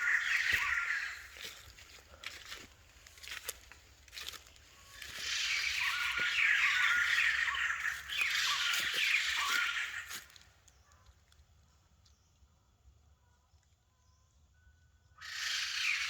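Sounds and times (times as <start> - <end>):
bird harsh cackling chatter: 0.0 - 3.5, 4.2 - 11.1, 15.2 - 16.0.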